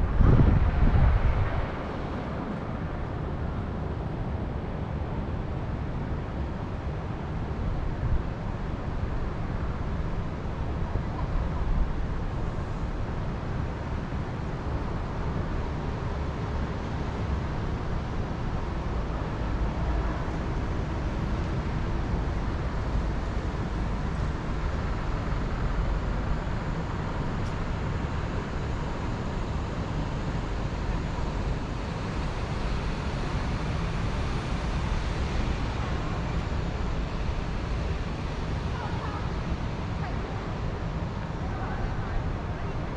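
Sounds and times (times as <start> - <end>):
wind with low rumble: 0.0 - 42.9.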